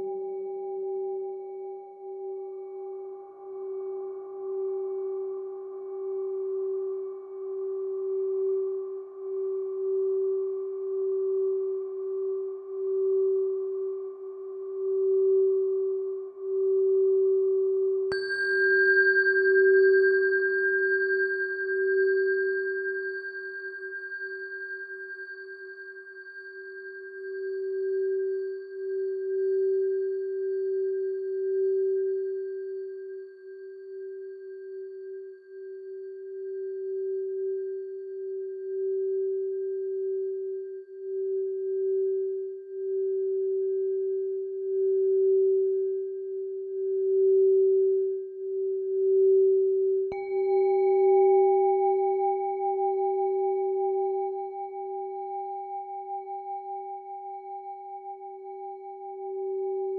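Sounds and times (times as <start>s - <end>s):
singing bowl ringing: 11.0s - 40.0s, 46.7s - 59.9s.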